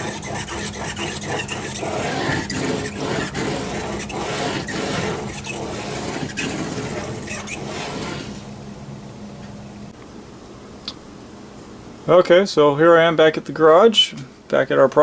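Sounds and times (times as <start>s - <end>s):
sandpaper scratching strokes: 0.0s - 8.5s.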